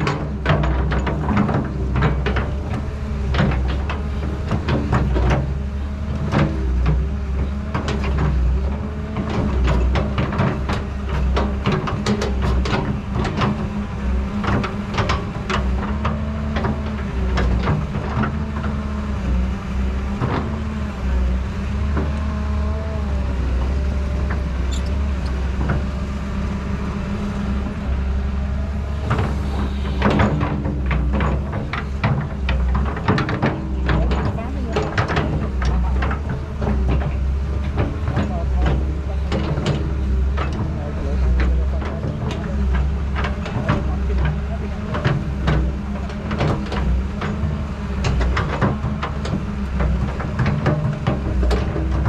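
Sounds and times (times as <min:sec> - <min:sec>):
excavator engine drone: 0:00.0 - 0:52.0
clicks and knocks: 0:23.3 - 0:52.0.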